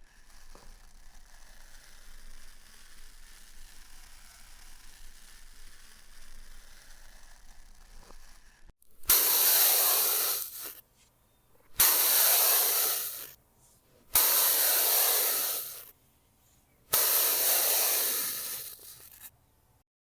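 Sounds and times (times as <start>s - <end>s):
reversed hissing bursts: 9.0s - 10.8s, 11.6s - 19.3s.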